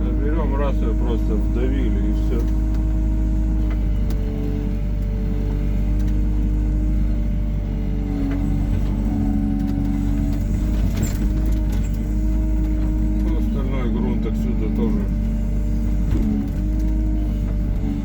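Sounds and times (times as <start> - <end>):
excavator diesel engine running: 0.0 - 18.0
hydraulic whine: 0.0 - 18.0.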